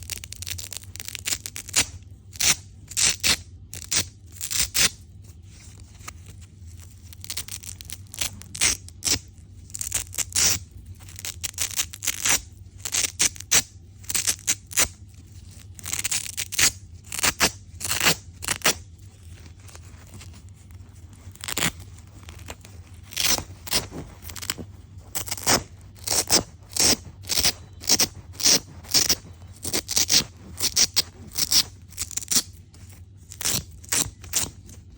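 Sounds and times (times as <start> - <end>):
faint low hum: 0.0 - 34.9
velcro rasping: 0.0 - 34.9.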